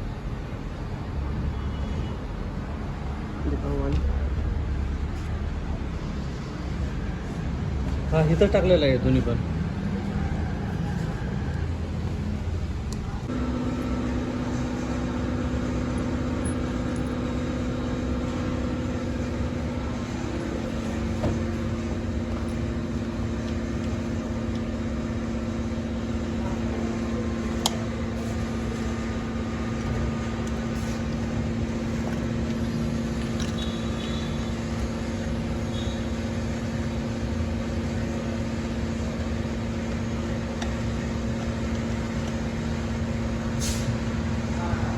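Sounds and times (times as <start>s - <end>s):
car engine idling: 11.0s - 44.9s
steady hum: 11.7s - 44.9s.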